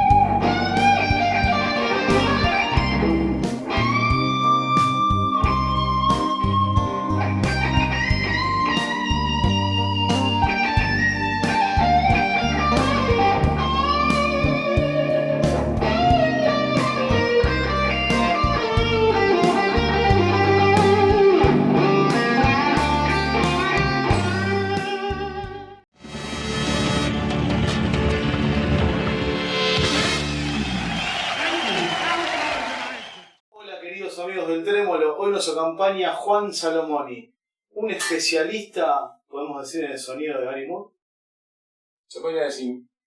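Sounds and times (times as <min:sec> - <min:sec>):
electric lead guitar: 0:00.0 - 0:25.8
bass: 0:00.0 - 0:31.4
drums: 0:00.0 - 0:32.2.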